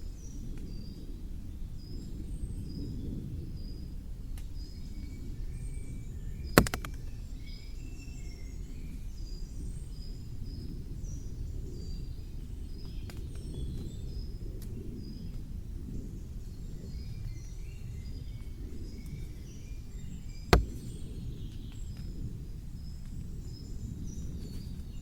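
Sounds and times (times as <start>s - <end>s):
loud sharp click: 6.6s - 7.0s.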